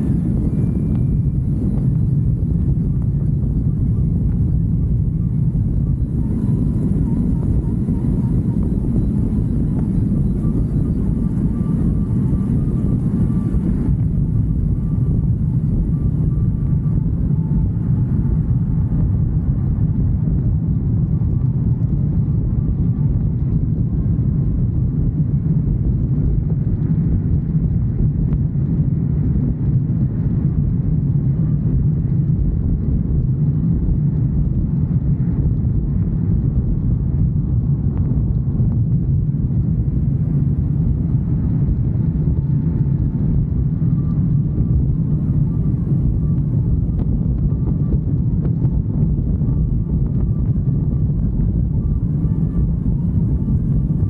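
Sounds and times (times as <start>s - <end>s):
wind noise: 0.0s - 54.0s.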